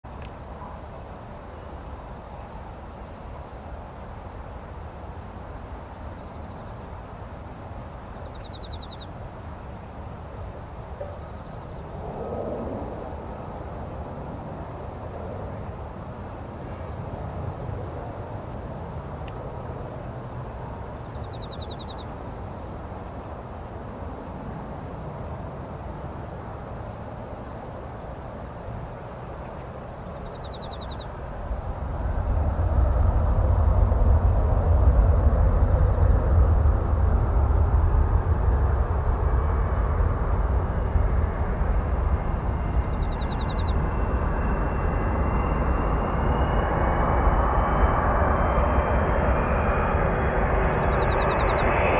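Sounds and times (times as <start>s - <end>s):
insects chirping: 0.1s - 51.9s
low background rumble: 30.0s - 51.9s
pulsing high tone: 39.0s - 51.9s.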